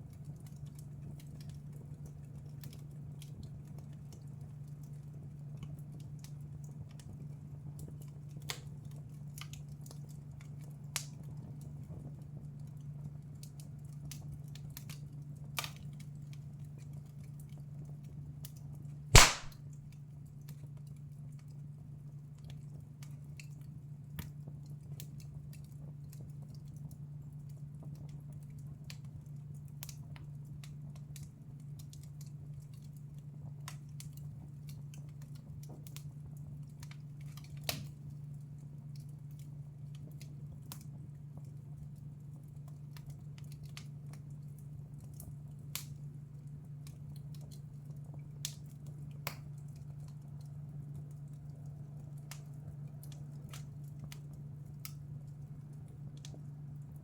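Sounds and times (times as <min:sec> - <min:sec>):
wood fire crackling: 0:19.2 - 0:19.5, 0:28.8 - 0:57.0
loud sharp pop: 0:19.2 - 0:19.6.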